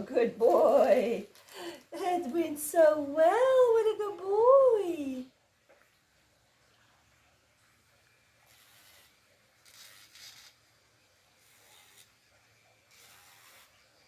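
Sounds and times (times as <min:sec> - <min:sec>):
faint steady hum: 0:00.0 - 0:14.0
nail grinder rasping on toenails: 0:08.5 - 0:10.6, 0:11.4 - 0:12.2, 0:12.9 - 0:13.8.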